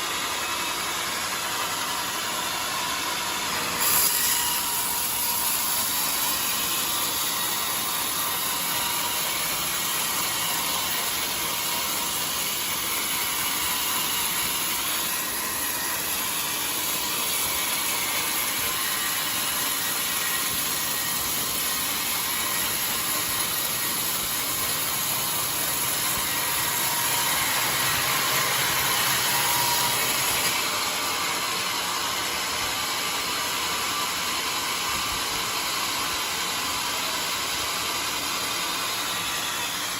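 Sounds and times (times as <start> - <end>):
bandsaw cutting log: 0.0 - 39.9
high hiss of saw blade: 3.6 - 11.1.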